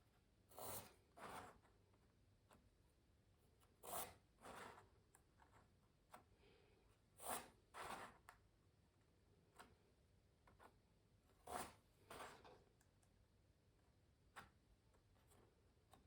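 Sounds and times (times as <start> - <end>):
pencil scratching on canvas: 0.5 - 1.8, 3.8 - 5.7, 7.2 - 8.3, 11.4 - 12.5.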